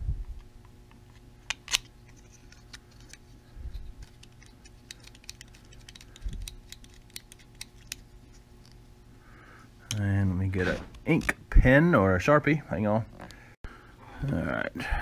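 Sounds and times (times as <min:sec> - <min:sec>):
small parts clicking and tapping: 0:04.0 - 0:08.0.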